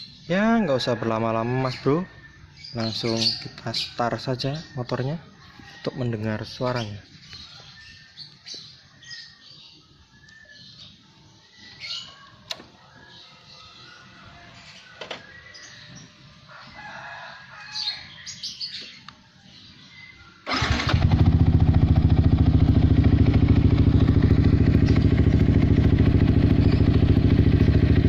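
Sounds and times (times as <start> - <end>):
motorcycle engine starting and idling: 20.4 - 28.0.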